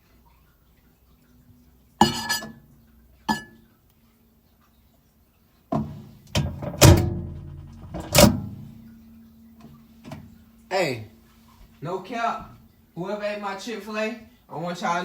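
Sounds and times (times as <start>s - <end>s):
kitchenware clinking and knocking: 2.0s - 2.6s, 3.3s - 3.6s.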